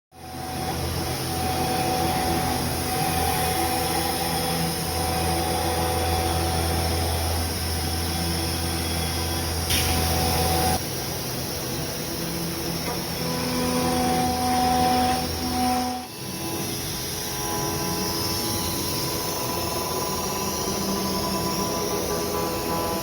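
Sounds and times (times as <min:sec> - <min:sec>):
router spindle whine and hum: 0:00.1 - 0:23.0.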